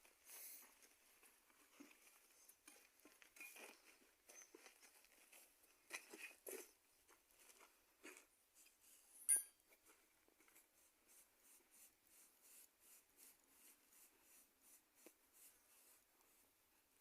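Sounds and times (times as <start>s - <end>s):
faint rhythmic scraping: 0.0s - 17.0s
sharp metallic clink: 9.2s - 9.6s.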